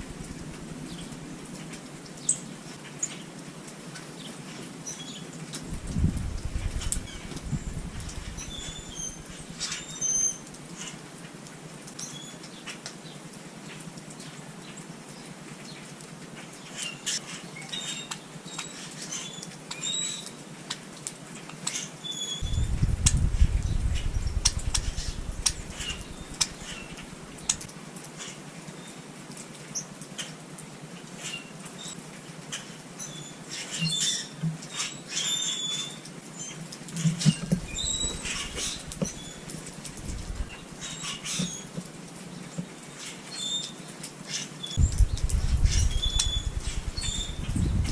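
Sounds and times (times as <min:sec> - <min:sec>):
small birds chirping: 0:04.2 - 0:11.0, 0:21.6 - 0:29.0, 0:37.2 - 0:47.9
low rumble: 0:05.7 - 0:09.2, 0:22.4 - 0:27.6, 0:40.0 - 0:40.6, 0:44.8 - 0:47.9
quick sharp ticks and patters: 0:22.4 - 0:27.7, 0:44.8 - 0:47.9.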